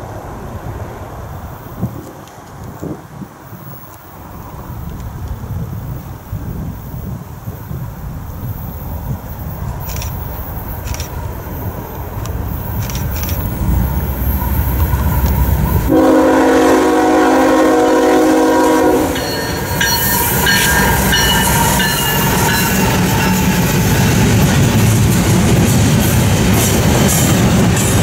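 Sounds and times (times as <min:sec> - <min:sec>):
train rail noise: 0:00.0 - 0:28.0
diesel locomotive rumble: 0:04.2 - 0:28.0
high wheel squeals: 0:08.5 - 0:15.9, 0:19.0 - 0:24.4
multi-chime air horn: 0:15.9 - 0:23.5.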